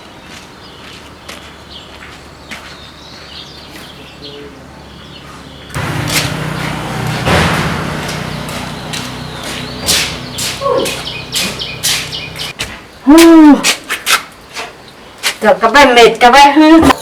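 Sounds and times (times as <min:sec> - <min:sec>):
machine humming: 0:05.7 - 0:12.6
metal knocks and clanks: 0:05.7 - 0:12.6.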